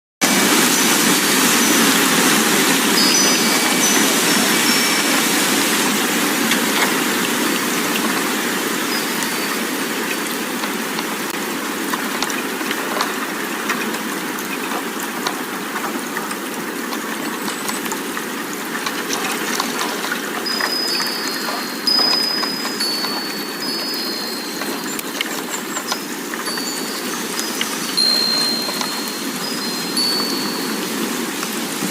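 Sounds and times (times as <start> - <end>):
rushing wind: 0.2 - 31.9
faint high chime tones: 1.6 - 6.0, 8.8 - 10.0, 20.4 - 31.5.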